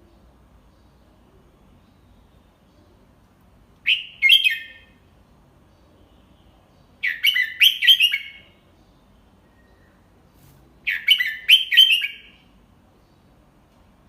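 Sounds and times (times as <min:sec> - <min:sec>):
bird singing clear notes: 0:03.8 - 0:05.1, 0:05.7 - 0:10.2, 0:10.8 - 0:13.3.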